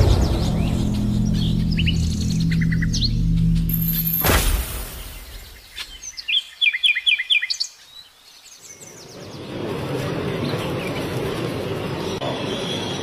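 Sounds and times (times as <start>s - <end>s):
bird chirping: 0.0s - 9.4s
din of busy indoor hall: 9.0s - 13.0s.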